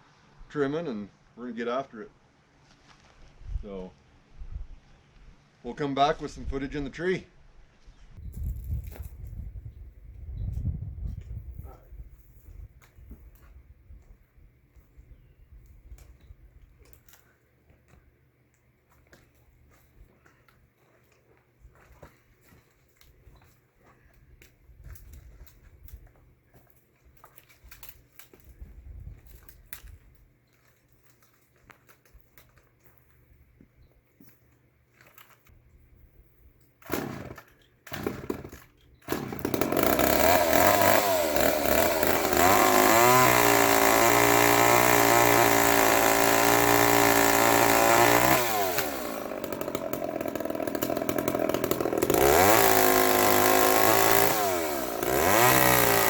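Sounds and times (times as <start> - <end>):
chainsaw starting and revving: 36.8 - 56.0.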